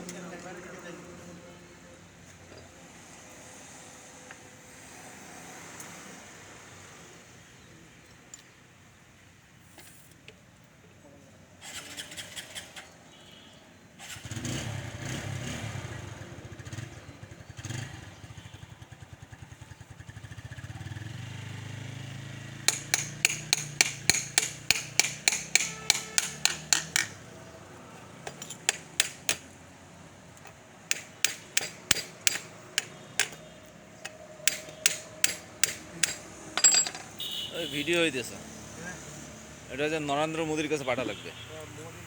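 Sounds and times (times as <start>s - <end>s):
sharp hammering knocks: 22.6s - 27.3s, 28.2s - 29.6s, 30.5s - 37.3s.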